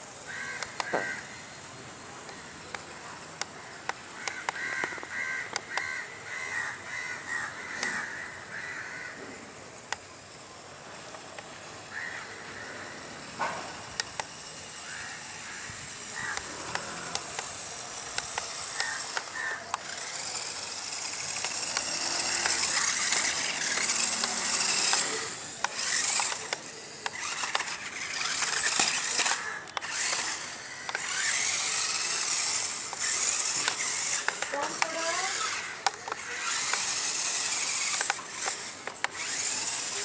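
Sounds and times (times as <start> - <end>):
toy electric motor whining: 0.0 - 40.0
clicks and scrapes from chassis: 16.4 - 40.0.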